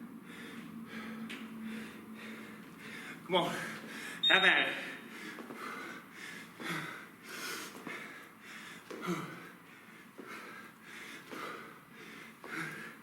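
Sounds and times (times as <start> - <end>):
person breathing hard: 0.0 - 4.2, 4.8 - 13.0.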